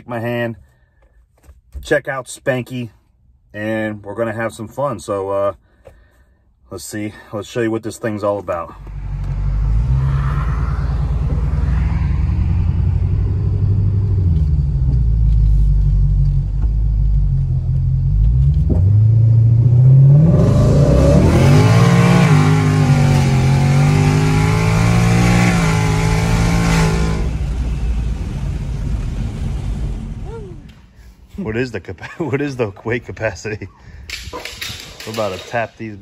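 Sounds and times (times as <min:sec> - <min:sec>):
car engine accelerating: 0:08.5 - 0:30.9.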